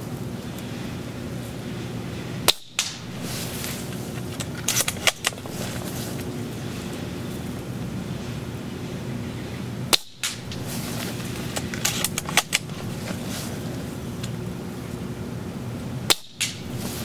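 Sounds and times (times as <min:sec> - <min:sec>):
airsoft rifle firing snap: 0:02.5 - 0:03.3, 0:09.9 - 0:10.6, 0:16.1 - 0:16.8.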